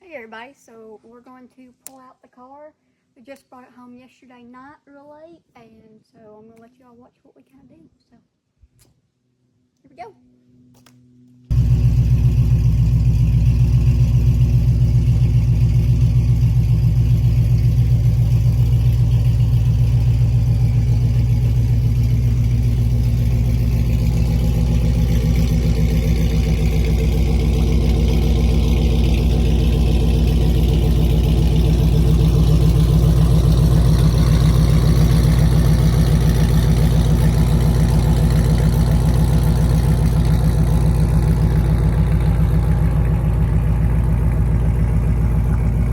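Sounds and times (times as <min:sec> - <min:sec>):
drag car engine idling: 0:11.5 - 0:45.9.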